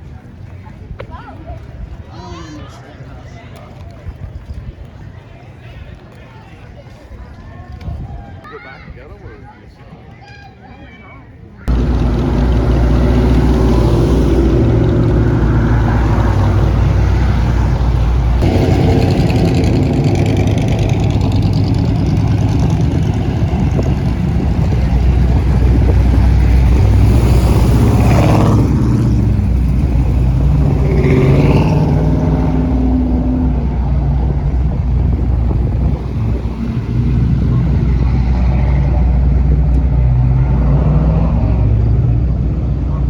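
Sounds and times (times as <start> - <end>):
car engines rumbling: 11.7 - 43.0.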